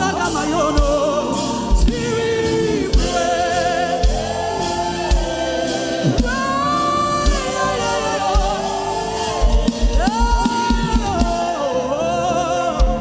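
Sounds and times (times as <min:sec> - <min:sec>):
person singing gospel: 0:00.0 - 0:13.0
sustained backing music: 0:00.0 - 0:13.0
low drum beat: 0:00.7 - 0:06.6, 0:08.2 - 0:11.6.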